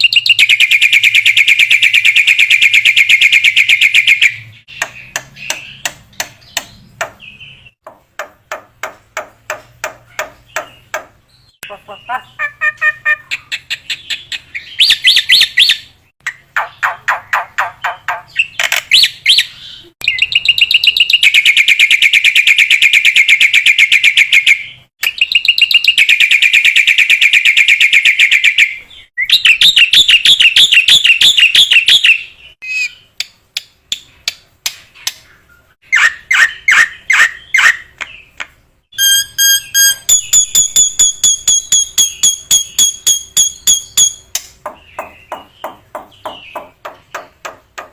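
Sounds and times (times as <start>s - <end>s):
bird singing chattering trills: 0.0s - 7.8s, 10.0s - 22.2s, 35.0s - 47.5s.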